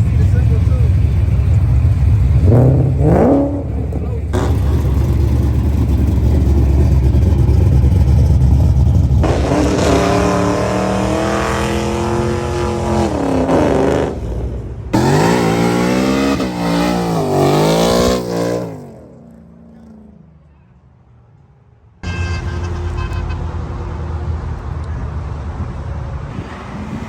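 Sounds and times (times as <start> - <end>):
car engine revving: 0.0 - 20.3.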